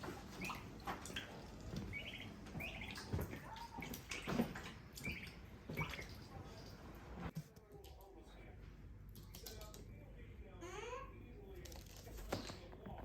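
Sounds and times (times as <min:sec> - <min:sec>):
small birds chirping: 0:00.2 - 0:06.6.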